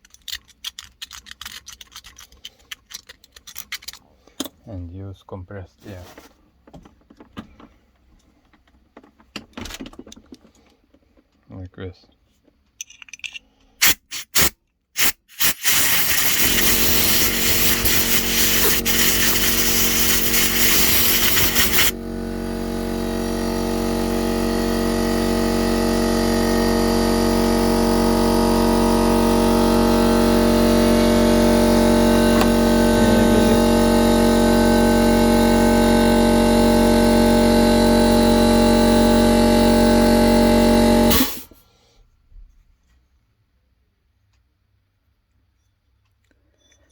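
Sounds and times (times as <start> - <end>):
air blow gun hissing: 13.8 - 41.5
air compressor motor humming: 15.3 - 41.6.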